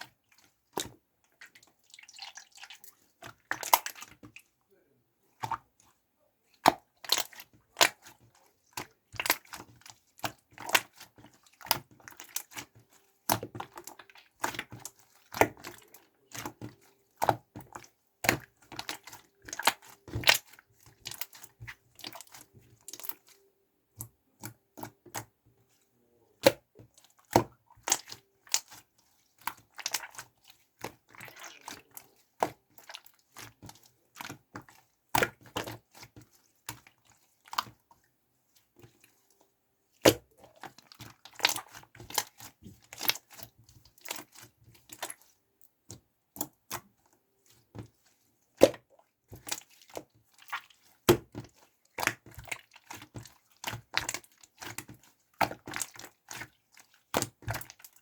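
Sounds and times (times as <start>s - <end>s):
slime being squished by hand: 48.6s - 58.0s.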